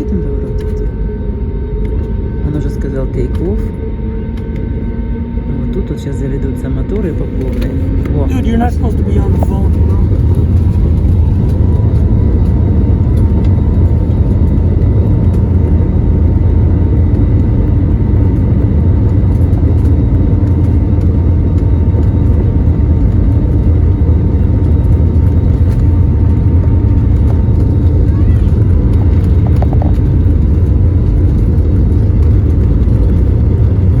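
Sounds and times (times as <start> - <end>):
jet engines at takeoff thrust: 0.0 - 34.0.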